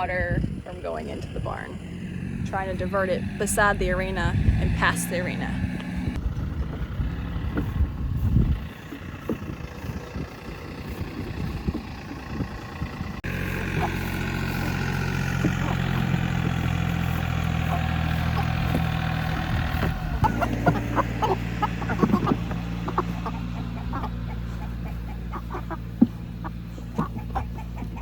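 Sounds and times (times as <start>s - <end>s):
tractor engine idling: 0.0s - 28.0s.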